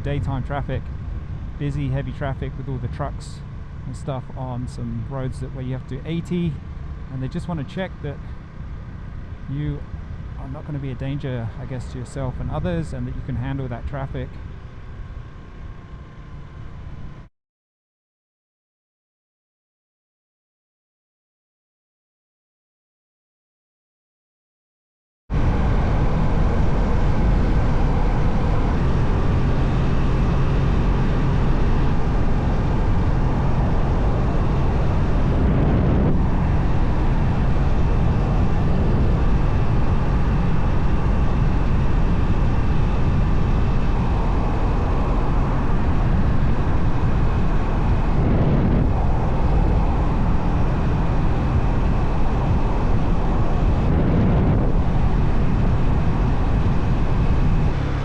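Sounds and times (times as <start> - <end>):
motorcycle engine running: 0.0 - 17.2, 25.3 - 58.0
wind noise on microphone: 25.3 - 58.0.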